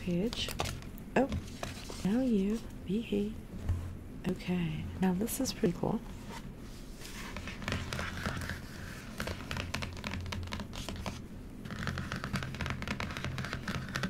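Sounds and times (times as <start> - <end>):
stiff paper pages rustling: 0.2 - 2.7, 6.2 - 14.0.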